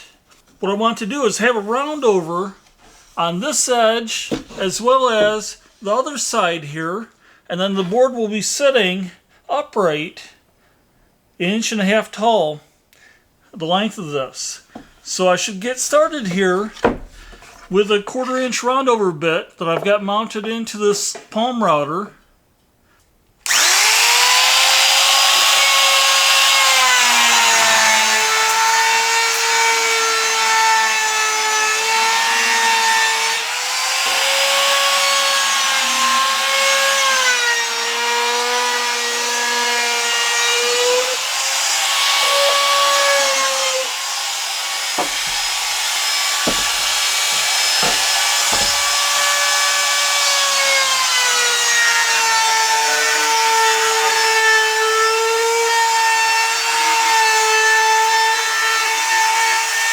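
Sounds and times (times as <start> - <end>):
router whining: 23.4 - 37.0, 40.1 - 55.0
low knocks: 45.0 - 49.4.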